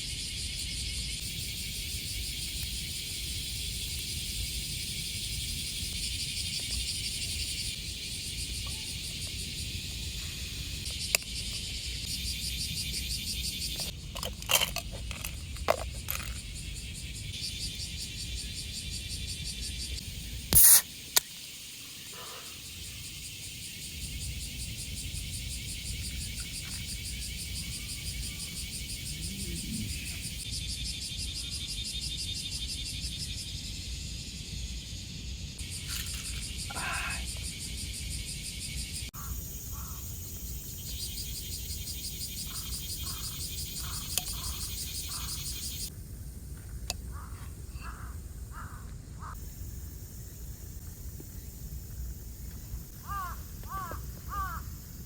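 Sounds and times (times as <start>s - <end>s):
insects shrilling: 0.4s - 31.2s, 35.6s - 46.0s, 52.8s - 55.0s.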